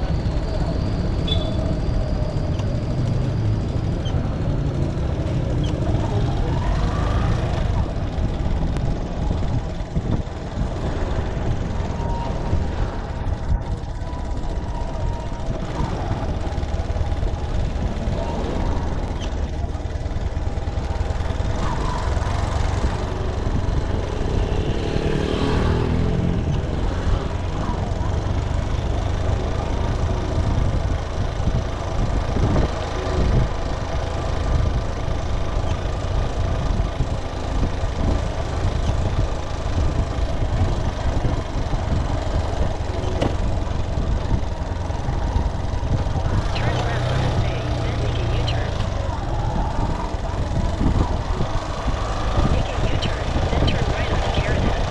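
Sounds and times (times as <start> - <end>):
motorcycle engine rumble: 0.0 - 54.9
tyres on road: 0.0 - 54.9
wind: 0.0 - 54.9
engine note rising and falling: 14.0 - 30.9, 36.2 - 54.9.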